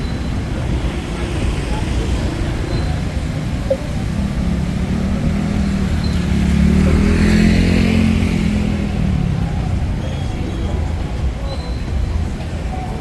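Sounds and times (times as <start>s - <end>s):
traffic rumble: 0.0s - 13.0s
vehicle engine passing: 0.3s - 11.5s.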